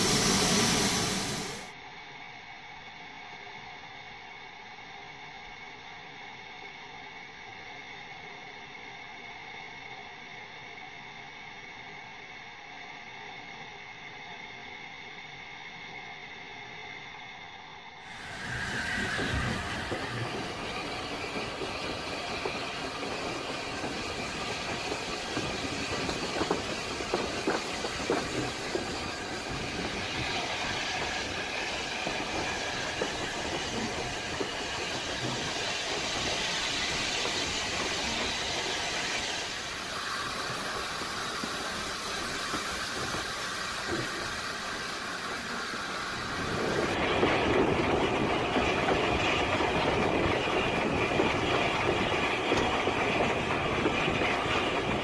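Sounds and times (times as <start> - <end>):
train rumble and hiss: 0.0 - 55.0
wheels clattering over rail joints: 18.1 - 55.0.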